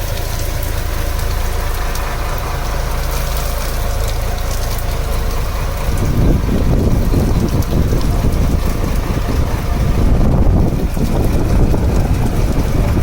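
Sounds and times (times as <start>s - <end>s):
boat engine running: 0.0s - 13.0s
wind buffeting microphone: 0.6s - 13.0s.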